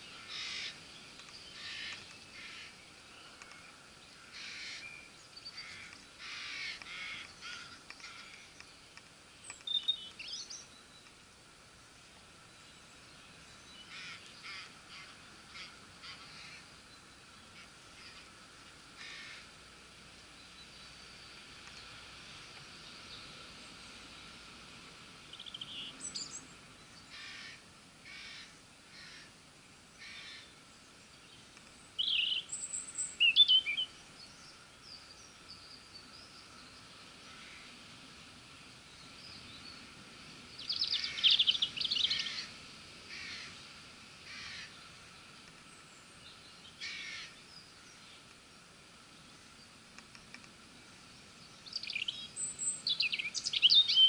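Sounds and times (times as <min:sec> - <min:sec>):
birds harsh calls: 0:00.0 - 0:11.2, 0:12.8 - 0:19.6, 0:25.2 - 0:29.4, 0:30.0 - 0:36.6, 0:39.0 - 0:43.6, 0:44.2 - 0:48.3
birds chirping song: 0:00.0 - 0:19.5, 0:20.1 - 0:24.4, 0:25.0 - 0:54.0
faint outdoor background: 0:00.0 - 0:54.0.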